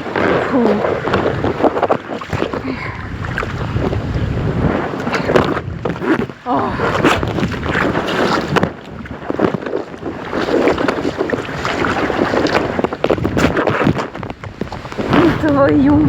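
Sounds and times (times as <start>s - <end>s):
water splashing against kayak: 0.0s - 16.0s
wind buffeting microphone: 0.0s - 16.0s.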